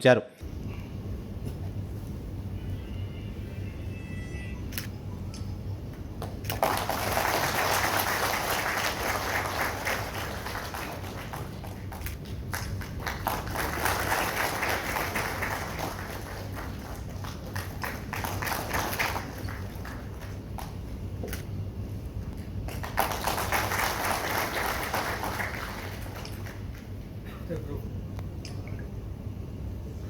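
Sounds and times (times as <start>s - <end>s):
audience applauding: 6.2s - 20.9s, 22.6s - 27.0s.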